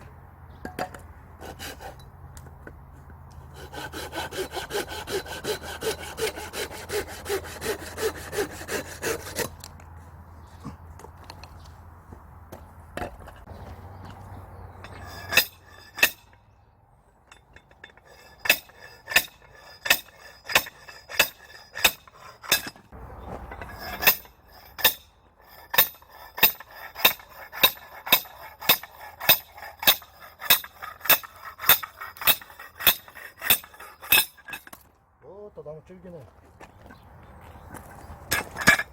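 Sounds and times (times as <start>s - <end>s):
saw cutting wood: 1.4s - 2.1s, 3.4s - 9.7s, 14.9s - 16.3s, 17.8s - 34.7s
hammer striking steel wedge: 14.8s - 16.4s, 17.3s - 22.8s, 23.8s - 34.8s.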